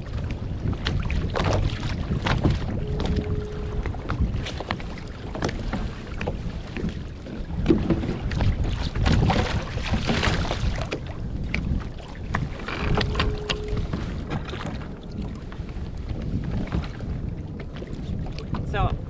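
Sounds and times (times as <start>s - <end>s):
water splashing against hull: 0.0s - 19.0s
wind buffeting microphone: 0.0s - 19.0s
steady tone: 2.8s - 4.0s, 12.9s - 14.1s.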